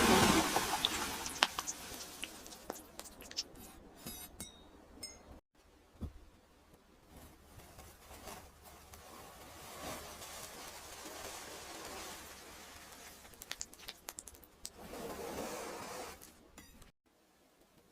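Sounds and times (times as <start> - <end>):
sand scraping and ticking: 7.5 - 16.4.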